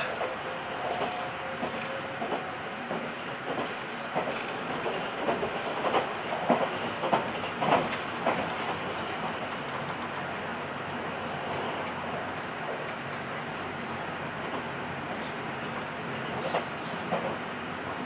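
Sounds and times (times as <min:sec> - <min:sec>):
wheel clacks over rail joints: 0:00.0 - 0:10.3
train running noise: 0:00.0 - 0:18.0.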